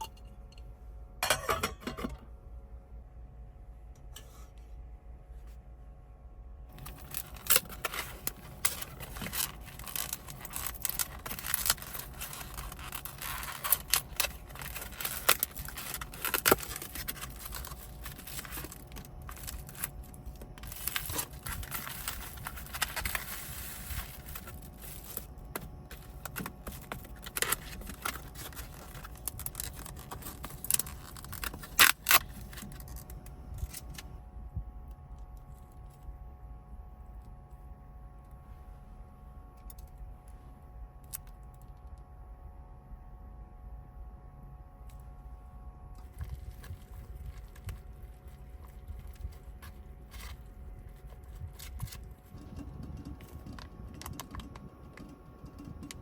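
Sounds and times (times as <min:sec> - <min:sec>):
small objects clicking and scraping: 0:06.7 - 0:34.0, 0:46.0 - 0:56.0.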